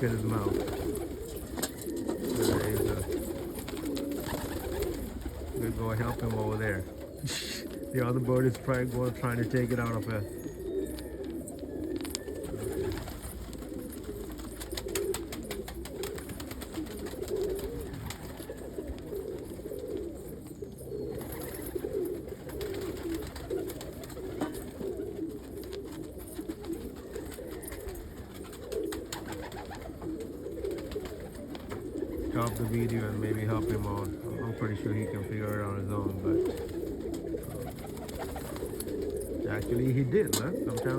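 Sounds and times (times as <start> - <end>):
pigeons cooing: 0.0 - 40.9.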